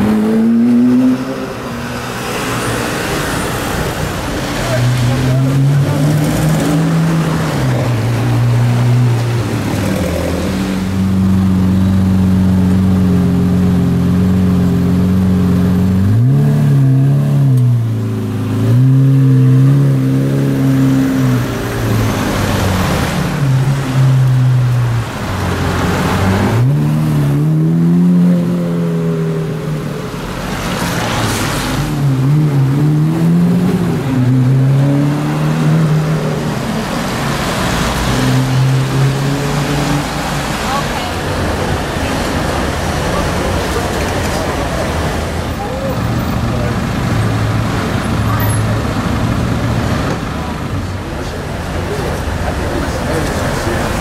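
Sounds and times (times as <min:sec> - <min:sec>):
car engine revving: 0:00.0 - 0:54.0
tyres hissing on wet road: 0:01.0 - 0:11.6, 0:30.1 - 0:32.1, 0:33.7 - 0:54.0.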